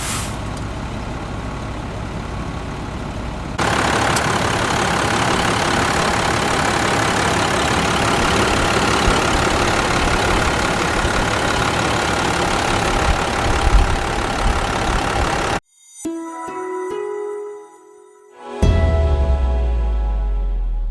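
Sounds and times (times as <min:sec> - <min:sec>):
diesel truck engine idling: 0:00.0 - 0:15.6.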